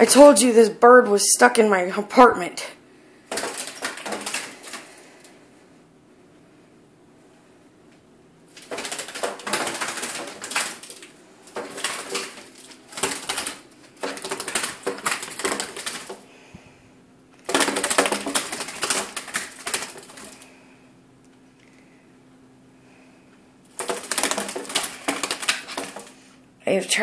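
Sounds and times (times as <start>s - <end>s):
bird wings fluttering and clattering: 3.3s - 5.0s, 8.5s - 16.2s, 17.4s - 20.4s, 23.7s - 26.2s.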